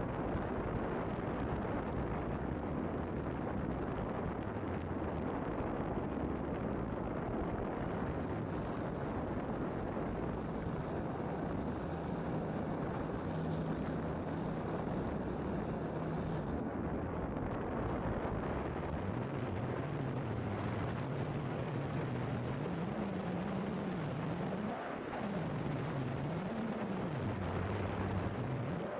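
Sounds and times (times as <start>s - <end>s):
wind noise on microphone: 0.0s - 28.9s
model aircraft engine droning: 7.8s - 16.7s.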